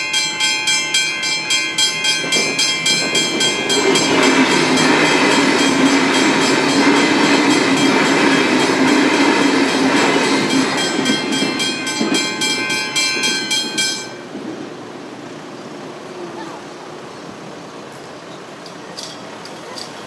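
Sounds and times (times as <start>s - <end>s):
crossing bell ringing: 0.0s - 14.5s
train passing: 0.0s - 20.0s.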